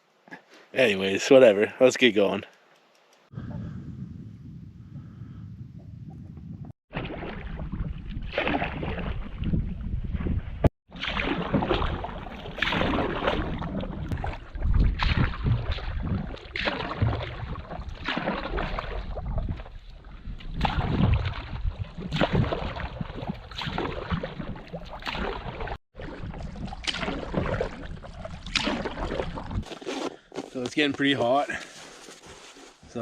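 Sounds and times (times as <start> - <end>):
wind noise: 3.3 - 10.7, 11.5 - 25.8
paddle splashing in water: 6.9 - 9.6, 10.9 - 30.1.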